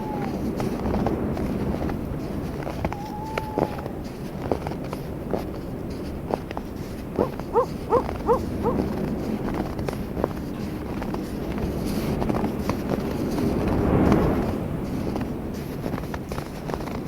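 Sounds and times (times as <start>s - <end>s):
animal hooting calls: 0.0s - 0.5s, 2.9s - 4.0s, 7.2s - 8.9s
footsteps crunching on snow: 0.0s - 13.7s
wind: 0.0s - 17.0s.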